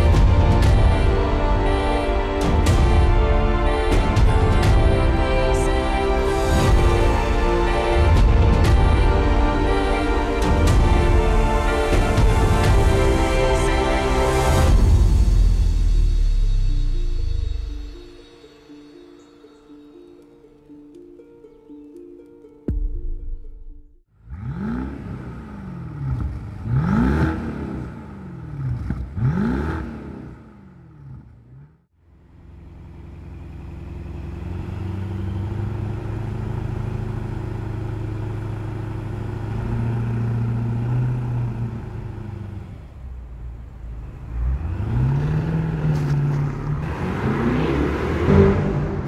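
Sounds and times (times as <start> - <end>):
car engine revving: 24.1 - 49.0
car engine idling: 32.0 - 49.0.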